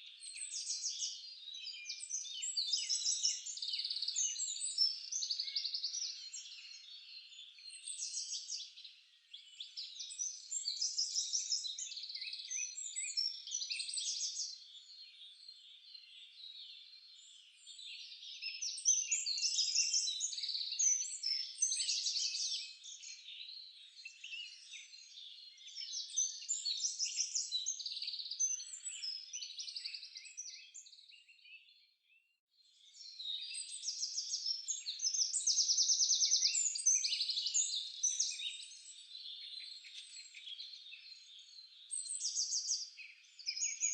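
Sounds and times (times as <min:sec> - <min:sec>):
songbirds singing and chirping: 0:00.0 - 0:43.9.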